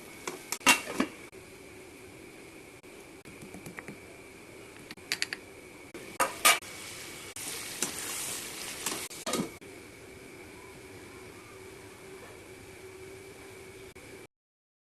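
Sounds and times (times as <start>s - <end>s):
food sizzling in hot oil: 6.0s - 9.6s.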